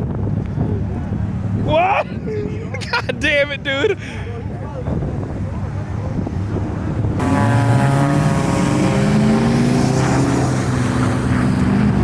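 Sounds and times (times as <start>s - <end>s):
car engine accelerating: 7.2s - 12.0s.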